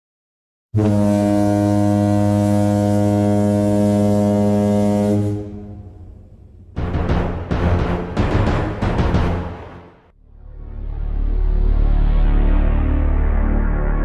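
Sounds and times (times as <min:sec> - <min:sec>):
long low horn blast: 0:00.8 - 0:07.9.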